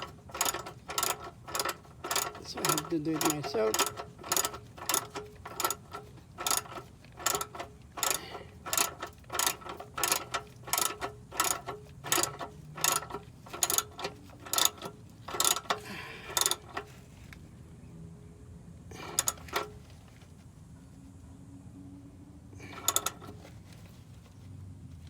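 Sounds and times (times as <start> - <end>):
ratchet wrench clicking: 0.0 - 16.9, 19.1 - 19.8, 22.6 - 23.5.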